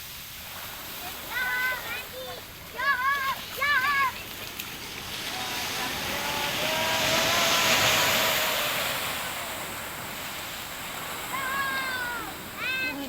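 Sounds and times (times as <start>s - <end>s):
ocean wave breaking: 0.0s - 13.0s.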